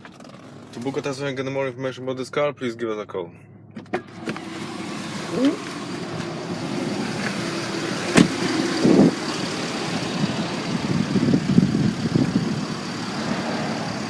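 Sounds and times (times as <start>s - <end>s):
diesel engine idling: 4.1s - 14.0s.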